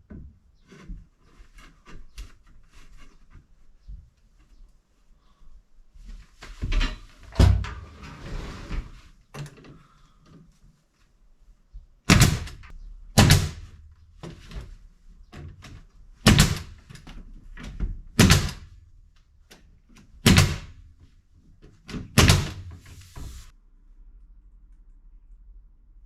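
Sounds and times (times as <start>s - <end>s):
loud knocks: 12.1s - 14.4s, 16.2s - 16.8s.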